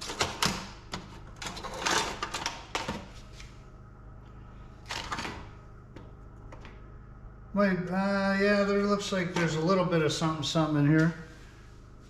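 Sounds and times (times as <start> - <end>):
wires and metal parts clattering: 0.0 - 3.1.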